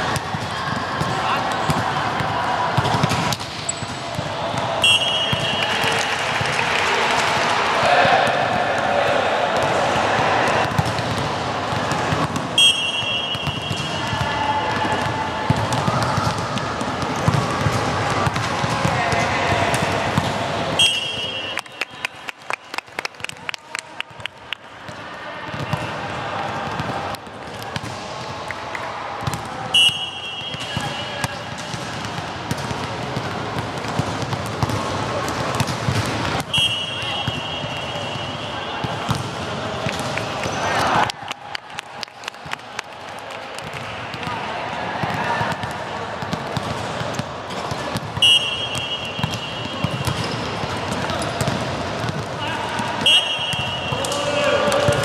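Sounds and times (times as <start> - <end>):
murmur of voices: 0.0 - 55.0
volleyball hits and knocks: 0.1 - 6.6, 7.9 - 21.7, 29.2 - 40.8, 45.0 - 55.0
referee whistle blast: 4.8 - 5.7, 12.6 - 14.0, 20.8 - 21.6, 29.8 - 30.8, 36.5 - 38.7, 48.2 - 50.0, 53.0 - 54.0.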